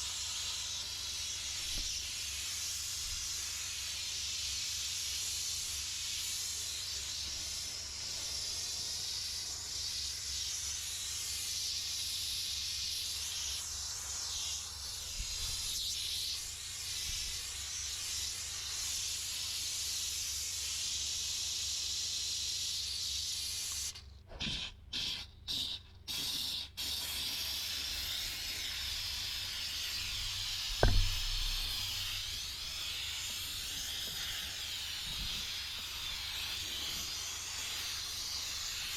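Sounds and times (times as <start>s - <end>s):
steam cleaner hissing: 0.0s - 38.9s
loud thump: 30.2s - 32.4s.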